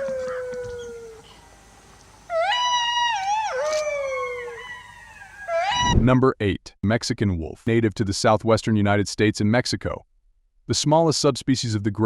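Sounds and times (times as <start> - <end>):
wolf howling: 0.0 - 1.4, 2.3 - 6.1.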